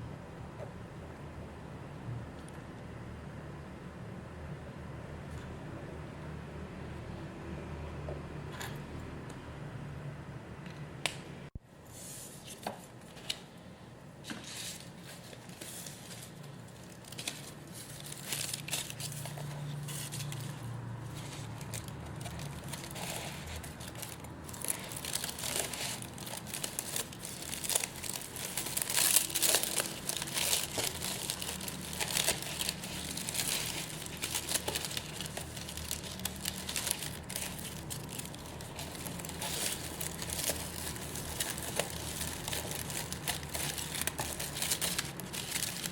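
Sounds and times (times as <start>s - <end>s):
packaging crinkling and rustling: 14.2s - 45.9s
packaging tearing: 15.5s - 45.9s.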